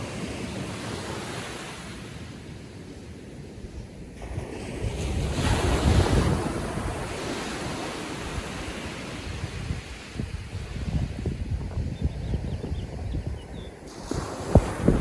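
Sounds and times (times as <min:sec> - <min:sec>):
wind buffeting microphone: 0:04.2 - 0:15.0
wave breaking on beach: 0:13.8 - 0:15.0.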